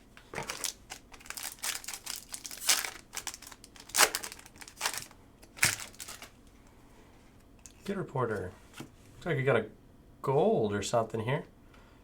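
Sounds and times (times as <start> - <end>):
card pack wrapper crinkling and tearing: 0.3 - 6.4.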